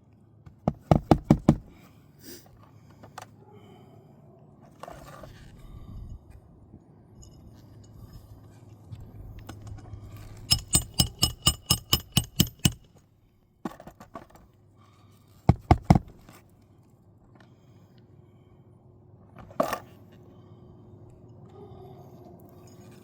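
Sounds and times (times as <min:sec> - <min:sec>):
hammer striking nail: 0:00.7 - 0:01.6, 0:10.5 - 0:12.9, 0:15.5 - 0:16.1.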